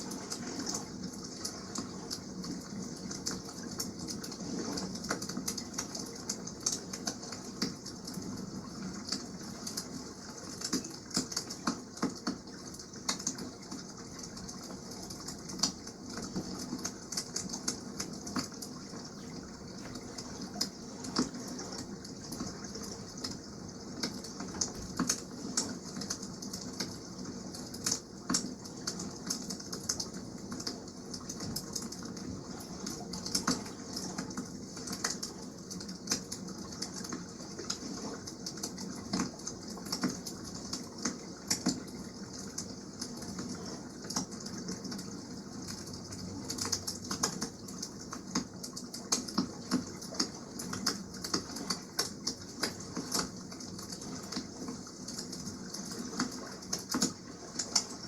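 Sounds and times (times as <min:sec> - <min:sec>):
water rushing: 0:00.0 - 0:06.4.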